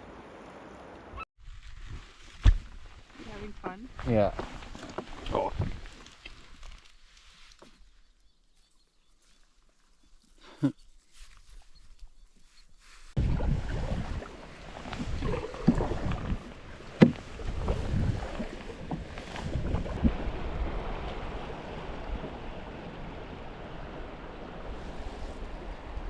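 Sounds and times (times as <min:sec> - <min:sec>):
wind rumbling on microphone: 0:00.0 - 0:06.6, 0:13.2 - 0:26.0
water splashing around canoe: 0:00.0 - 0:07.8, 0:12.8 - 0:26.0.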